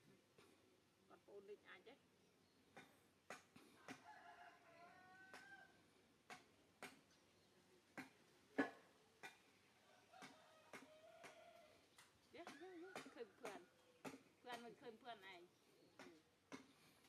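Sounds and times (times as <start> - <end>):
rooster crowing: 3.8 - 5.8, 9.8 - 11.8.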